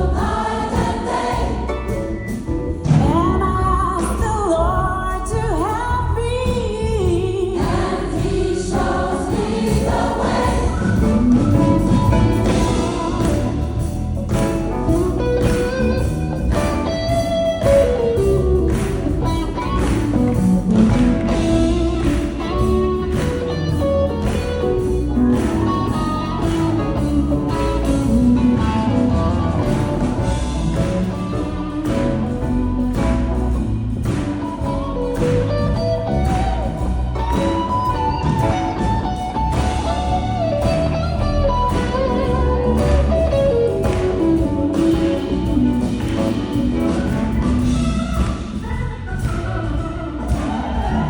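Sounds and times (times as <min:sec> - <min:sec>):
gospel choir singing: 0:00.0 - 0:03.2, 0:07.0 - 0:15.0, 0:45.1 - 0:51.0
instrumental accompaniment with beat: 0:00.0 - 0:51.0.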